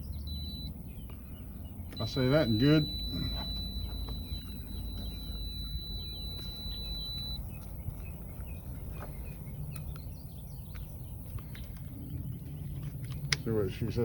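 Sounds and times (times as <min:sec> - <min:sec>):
birds chirping: 0:00.0 - 0:14.0
thin high-pitched tone: 0:02.0 - 0:07.4.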